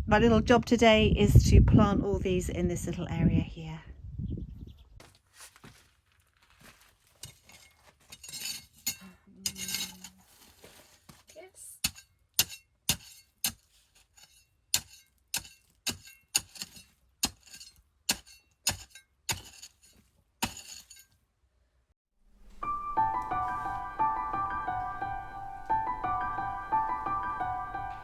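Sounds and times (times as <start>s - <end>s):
digging tool clinking on stony ground: 6.7s - 21.2s
soft piano music: 22.4s - 28.0s.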